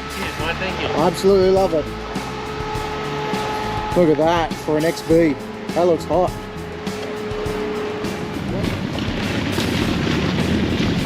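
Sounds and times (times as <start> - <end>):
car engine rumbling exhaust: 0.0 - 11.0.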